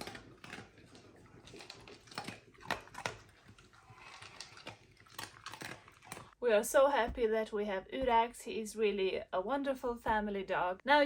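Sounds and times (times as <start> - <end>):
dog eating crunching: 0.0 - 6.4.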